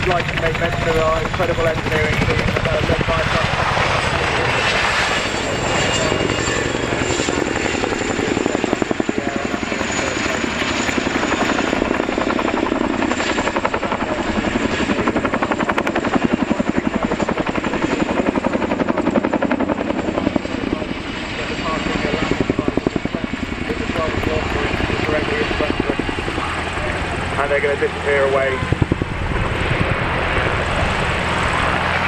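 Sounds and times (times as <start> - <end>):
helicopter rotors beating: 0.0 - 32.0.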